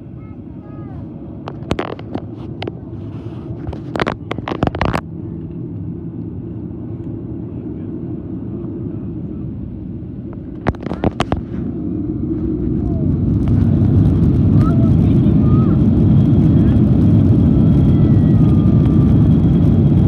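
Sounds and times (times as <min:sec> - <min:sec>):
airliner cabin rumble: 0:00.0 - 0:20.0
sharp clicks and rattles: 0:01.4 - 0:02.8, 0:03.5 - 0:05.0, 0:10.3 - 0:11.5.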